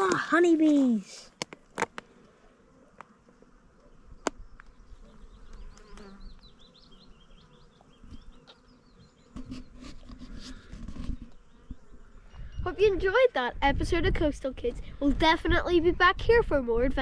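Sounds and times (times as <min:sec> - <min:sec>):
honeybees buzzing: 0:00.0 - 0:13.6.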